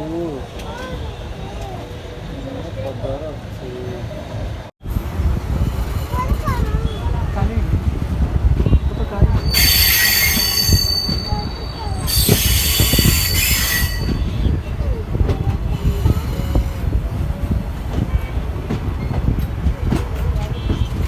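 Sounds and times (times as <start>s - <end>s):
train rumbling: 0.0s - 21.0s
wheels screeching on rails: 8.0s - 21.0s.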